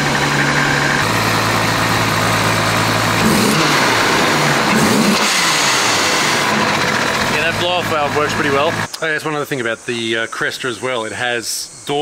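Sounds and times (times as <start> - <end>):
car engine idling and revving: 0.0 - 8.9.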